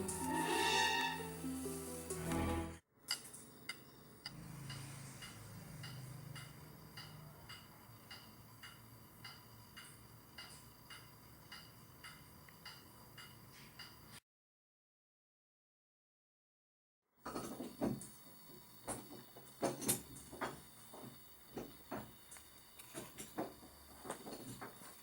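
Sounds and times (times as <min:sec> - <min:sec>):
burst of music: 0:00.0 - 0:02.8
clock ticking: 0:03.7 - 0:14.0.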